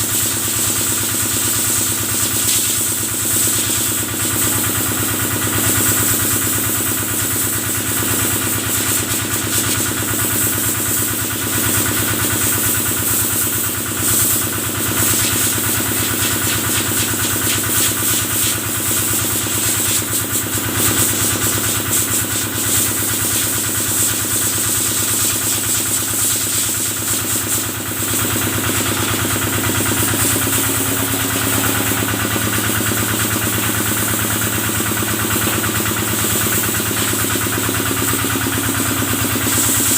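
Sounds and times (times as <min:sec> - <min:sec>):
stationary engine running: 0:22.5 - 0:39.9.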